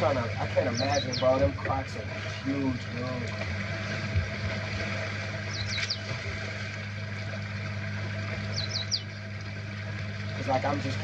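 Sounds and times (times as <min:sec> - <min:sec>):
bird chirps: 0:00.6 - 0:01.4, 0:05.5 - 0:06.1, 0:08.5 - 0:09.2.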